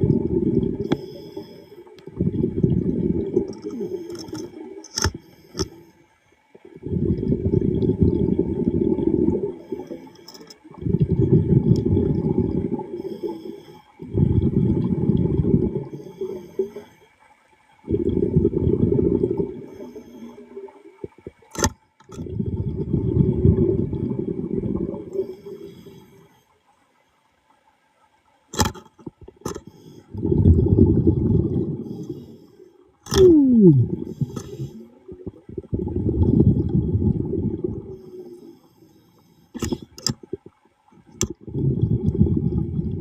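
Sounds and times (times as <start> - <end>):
exhaled air bubbling underwater: 0.0 - 27.5, 29.0 - 43.0
sharp click: 21.5 - 22.1, 28.5 - 29.7.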